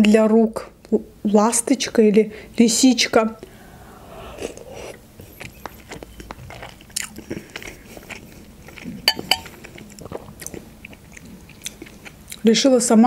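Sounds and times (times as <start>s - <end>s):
person chewing soup: 3.4s - 12.5s.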